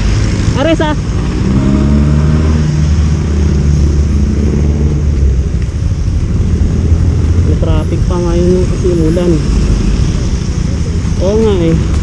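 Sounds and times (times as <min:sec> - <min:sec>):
wind and road noise: 0:00.0 - 0:12.0
motorcycle engine running: 0:02.5 - 0:12.0.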